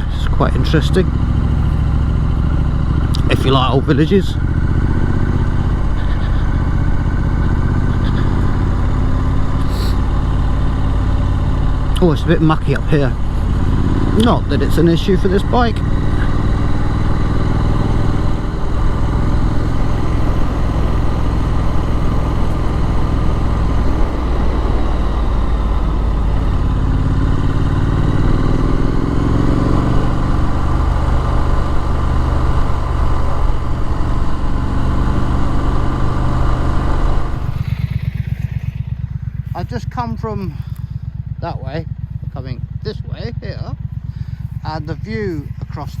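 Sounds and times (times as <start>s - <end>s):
motorcycle engine accelerating: 0.0s - 46.0s.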